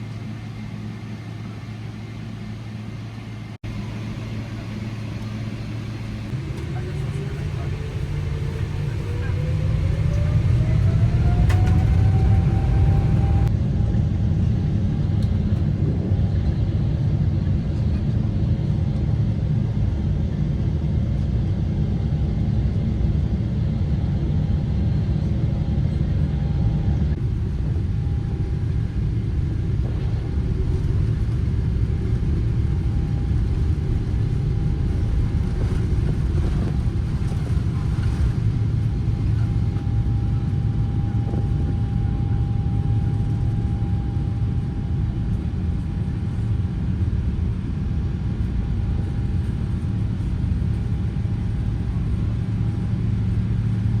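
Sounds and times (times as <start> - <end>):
jet engines at take-off thrust: 0.0 - 54.0.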